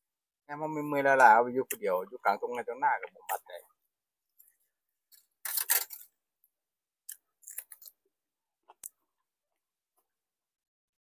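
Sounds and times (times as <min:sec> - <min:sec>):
people chewing food: 0:07.0 - 0:09.7.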